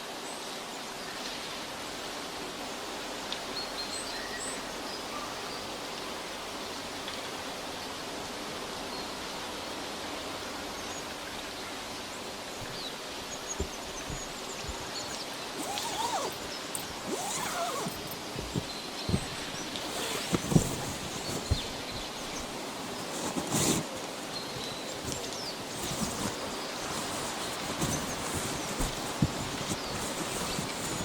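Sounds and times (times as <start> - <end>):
steady rushing hiss: 11.5 - 31.0.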